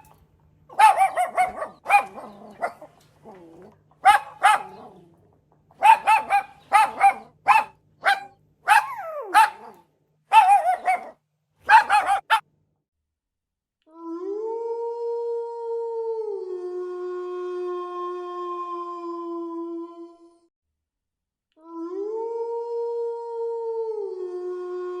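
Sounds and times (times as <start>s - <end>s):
dog barking: 0.7s - 3.0s, 4.0s - 4.9s, 5.8s - 12.5s
dog whining: 5.8s - 11.1s.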